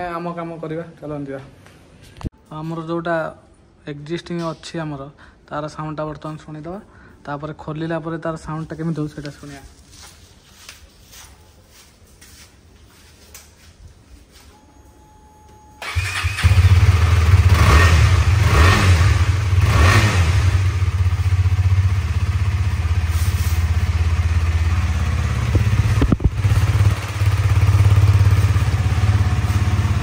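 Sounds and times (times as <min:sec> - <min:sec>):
motorcycle engine revving and idling: 0:15.8 - 0:30.0.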